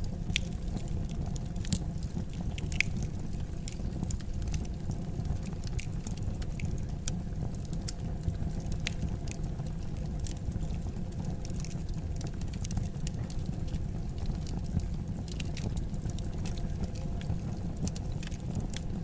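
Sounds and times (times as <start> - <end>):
fire crackling and popping: 0.0 - 19.0
fire rumbling: 0.0 - 19.0.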